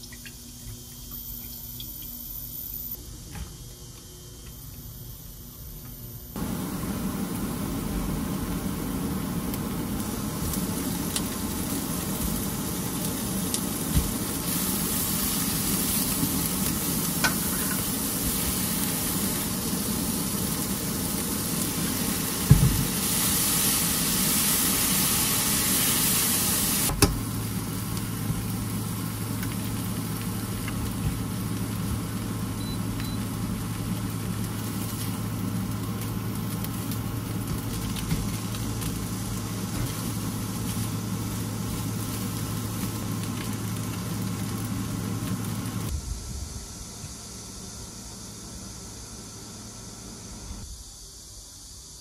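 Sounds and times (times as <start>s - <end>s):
low steady hum: 0.0s - 50.7s
food sizzling in hot oil: 6.4s - 45.9s.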